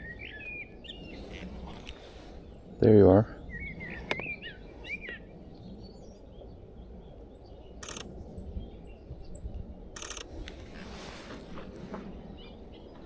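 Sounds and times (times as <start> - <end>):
low outdoor hum: 0.0 - 13.0
small birds chirping: 0.0 - 13.0
camera shutter clicks: 7.8 - 8.1, 10.0 - 10.6.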